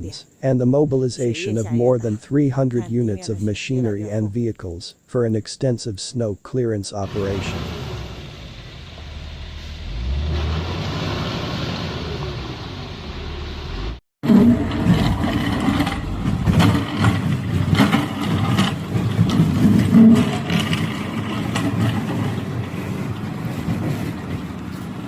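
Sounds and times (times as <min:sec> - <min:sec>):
vehicle engine rumble: 0:07.0 - 0:25.0
short knocks and clattering: 0:14.6 - 0:24.7.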